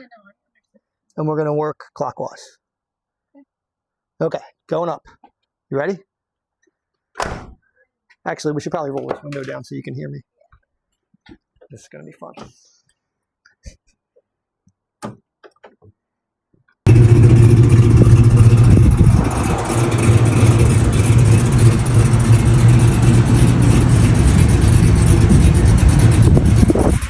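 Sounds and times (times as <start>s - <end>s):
hydraulic pump motor humming: 16.9s - 27.0s.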